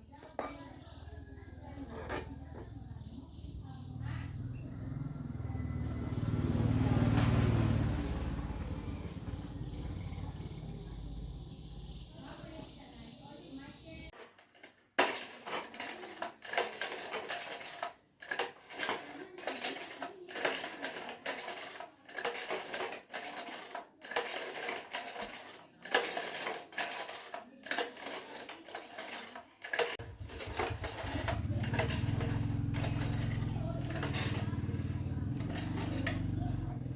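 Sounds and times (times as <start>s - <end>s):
metallic clinks and scrapes: 1.6s - 2.8s, 14.0s - 36.9s.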